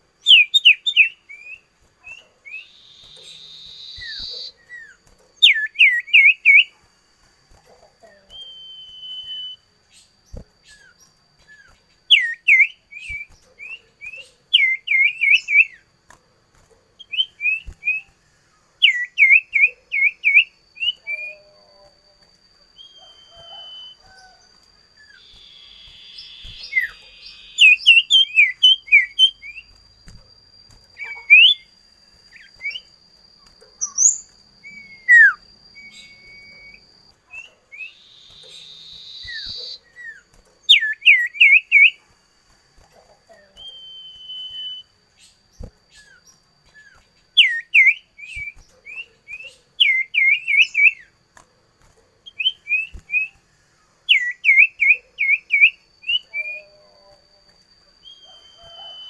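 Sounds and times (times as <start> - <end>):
bird whistling calls: 0.2 - 6.7, 8.2 - 9.6, 11.5 - 15.8, 22.8 - 24.4, 25.0 - 29.7, 31.0 - 31.7, 33.8 - 42.0, 43.5 - 44.9, 46.8 - 51.1, 54.1 - 56.9, 58.0 - 59.0
thin steady high tone: 17.0 - 51.2, 51.8 - 59.0.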